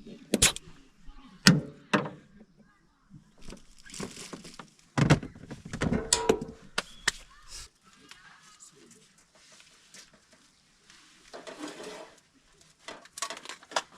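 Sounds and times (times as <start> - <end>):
knocks and clatter: 4.4 - 6.8.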